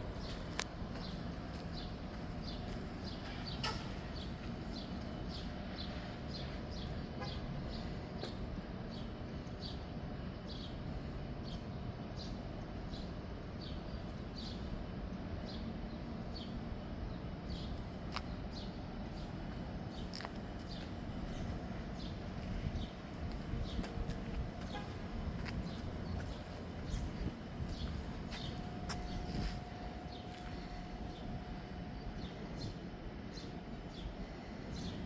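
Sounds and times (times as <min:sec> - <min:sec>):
train rumbling past: 0:14.9 - 0:35.0.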